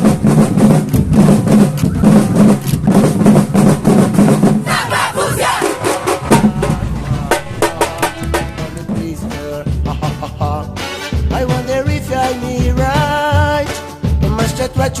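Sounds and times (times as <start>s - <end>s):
samba drum ensemble: 0.0s - 15.0s
crowd shouting and cheering: 1.8s - 10.5s.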